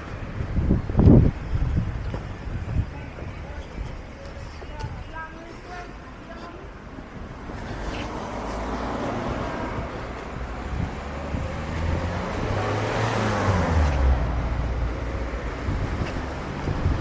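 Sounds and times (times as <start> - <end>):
road traffic noise: 0.0 - 17.0
motor engine passing by: 10.8 - 14.5.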